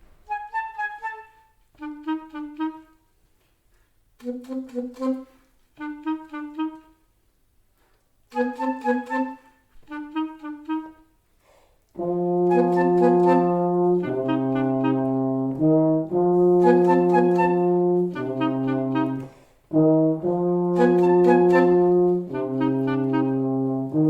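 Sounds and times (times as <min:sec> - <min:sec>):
repeated wind instrument notes: 0:00.3 - 0:03.0, 0:04.2 - 0:07.0, 0:08.3 - 0:11.1, 0:12.0 - 0:24.0
brass ensemble playing chords: 0:08.3 - 0:09.4, 0:12.0 - 0:24.0.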